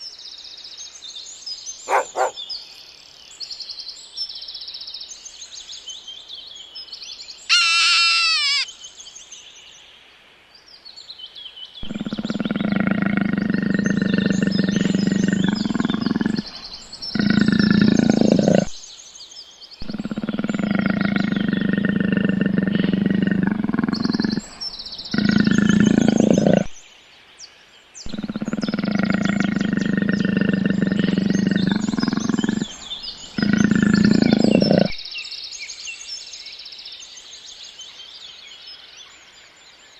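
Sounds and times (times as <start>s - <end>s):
small birds chirping: 0.0s - 39.9s
high falling call: 7.5s - 8.6s
long low animal call: 7.5s - 8.7s, 11.8s - 18.8s, 19.8s - 26.8s, 28.0s - 35.1s.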